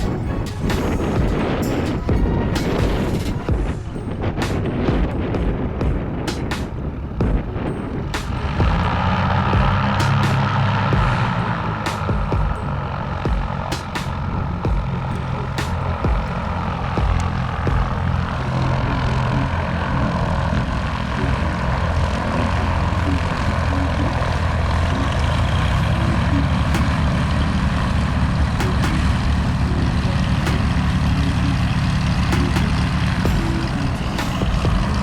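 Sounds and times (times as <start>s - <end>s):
piston engines and propellers: 0.0s - 35.0s.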